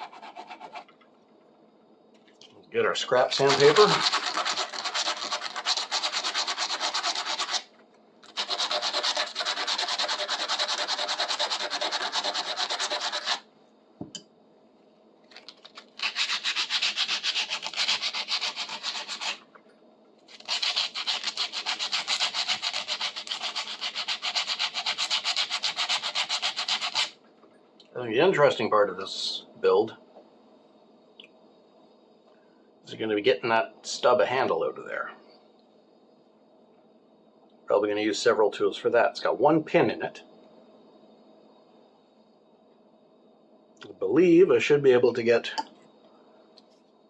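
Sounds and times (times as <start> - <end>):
sandpaper scratching on metal: 0.0 - 0.8, 3.4 - 7.7, 8.3 - 13.4, 16.0 - 19.4, 20.3 - 27.1.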